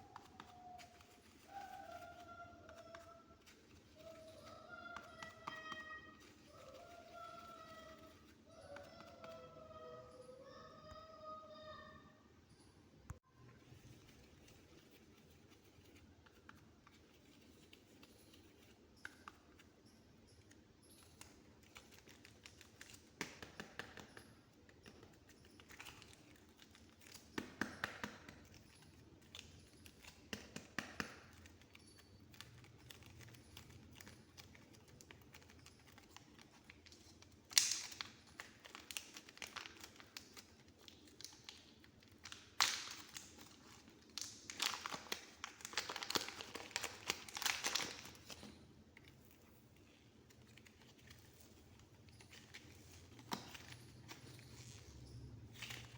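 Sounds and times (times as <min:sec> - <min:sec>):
modelling clay crackling: 0:00.0 - 0:55.9.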